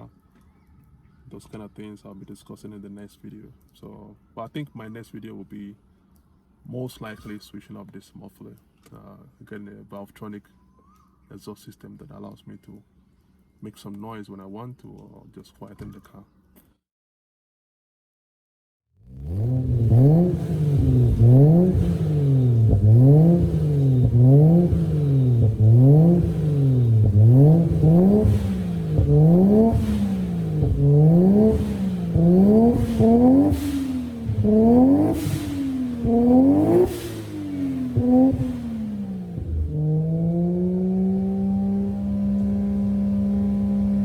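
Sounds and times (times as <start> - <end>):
car engine revving: 19.0 - 44.0.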